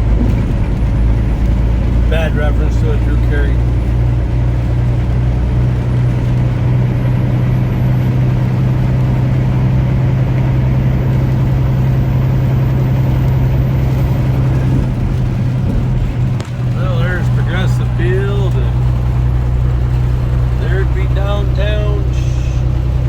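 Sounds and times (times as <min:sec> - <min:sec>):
road noise: 0:00.0 - 0:23.0
truck engine hum: 0:00.0 - 0:23.0.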